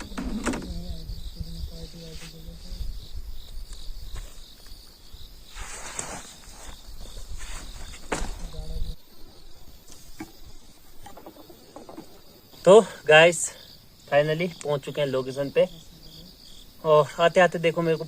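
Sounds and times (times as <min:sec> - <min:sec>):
crickets chirping: 0:00.0 - 0:18.0
brief rustling: 0:05.5 - 0:08.6.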